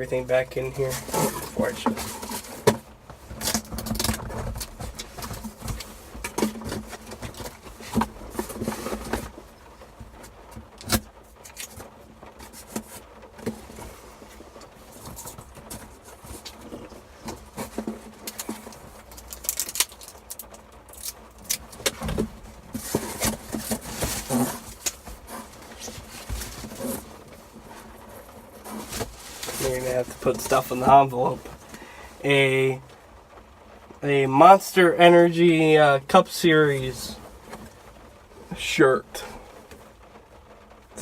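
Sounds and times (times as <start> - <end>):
envelope rustling: 0.8 - 32.2
clicks and knocks of handled items: 0.9 - 9.4, 10.0 - 31.8.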